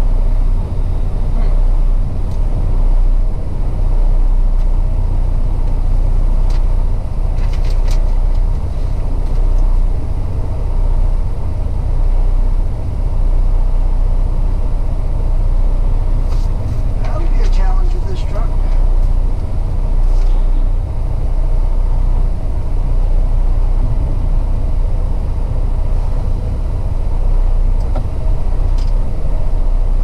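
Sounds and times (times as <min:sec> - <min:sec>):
road noise: 0:00.0 - 0:30.0
truck engine rumble: 0:00.0 - 0:30.0.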